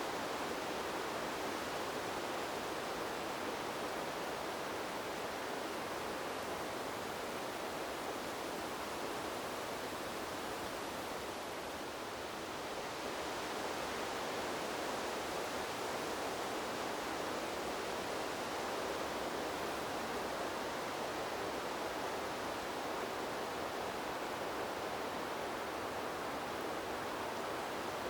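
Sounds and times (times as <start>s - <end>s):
wind through bamboo leaves: 0.0s - 28.0s.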